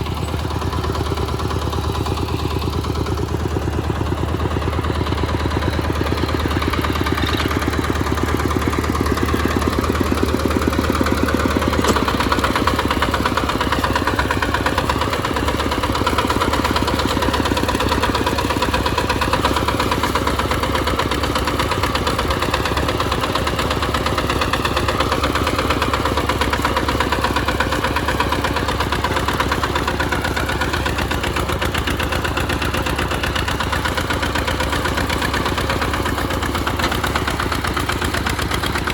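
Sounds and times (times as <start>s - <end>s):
diesel engine chugging: 0.0s - 38.9s.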